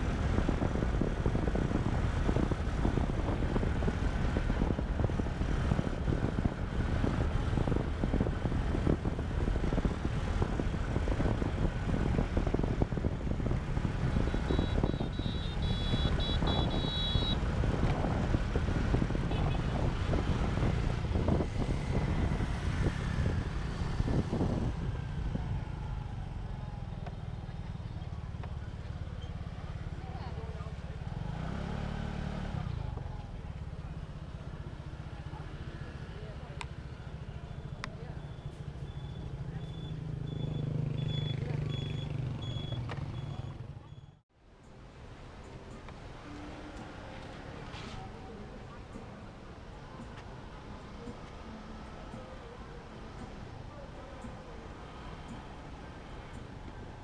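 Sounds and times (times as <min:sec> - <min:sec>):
motorcycle engine and road rumble: 0:00.0 - 0:57.0
wind buffeting microphone: 0:17.4 - 0:26.2.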